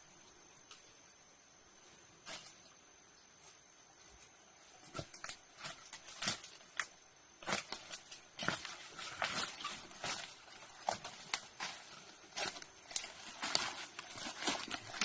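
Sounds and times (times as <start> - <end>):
footsteps through forest undergrowth: 3.3 - 15.0.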